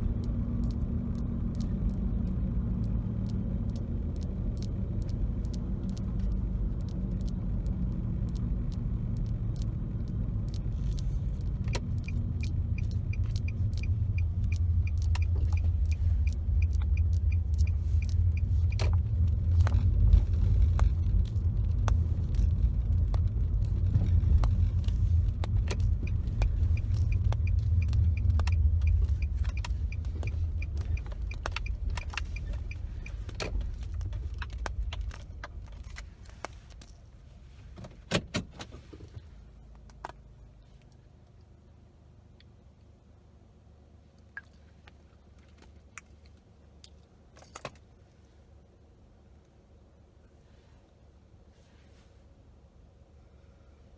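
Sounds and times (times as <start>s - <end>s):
light regular ticking: 0.0s - 37.0s
road rumble inside car: 0.0s - 53.9s.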